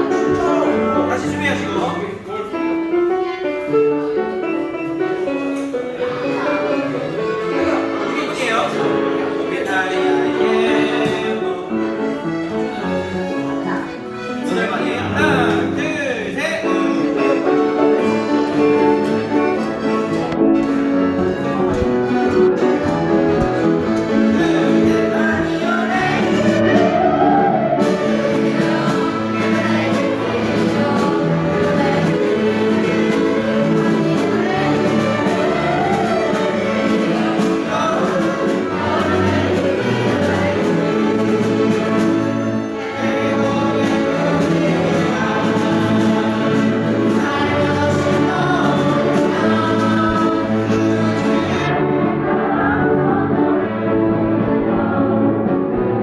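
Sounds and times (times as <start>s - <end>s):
instrumental accompaniment: 0.0s - 56.0s
choir singing yodel song: 6.0s - 12.4s, 22.6s - 55.8s.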